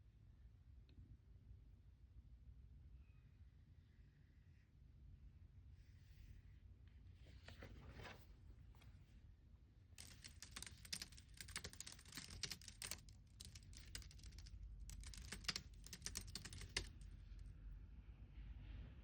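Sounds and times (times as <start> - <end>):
faint keyboard typing: 10.0 - 17.5.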